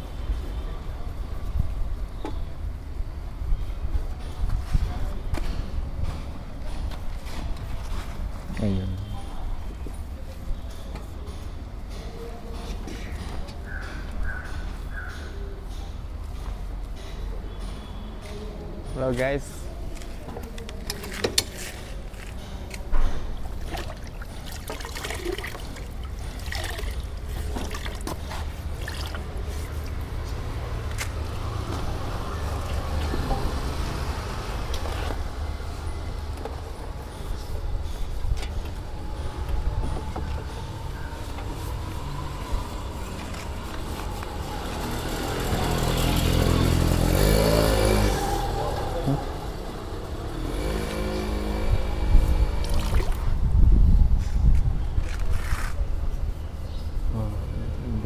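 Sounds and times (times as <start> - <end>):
knocks and wipes against motorcycle: 0.2 - 57.9
vehicle engine running: 29.6 - 53.2.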